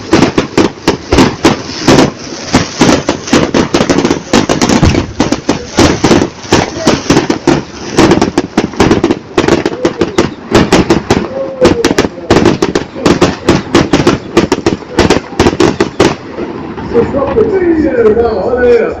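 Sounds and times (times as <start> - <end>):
firecrackers banging: 0.0 - 19.0.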